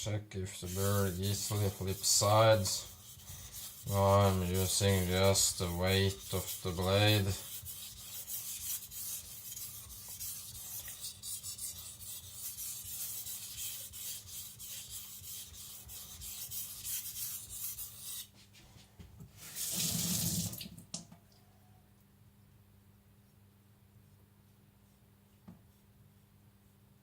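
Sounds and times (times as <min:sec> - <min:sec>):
knife blade rubbing on whetstone: 0:00.6 - 0:18.3.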